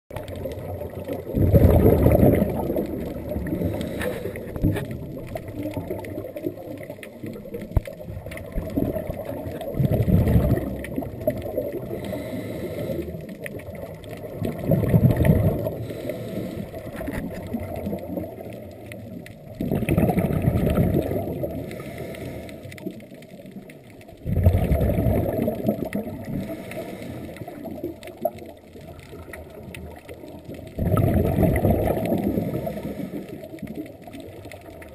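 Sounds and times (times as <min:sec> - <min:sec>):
underwater bubbles bursting: 0:00.1 - 0:34.9.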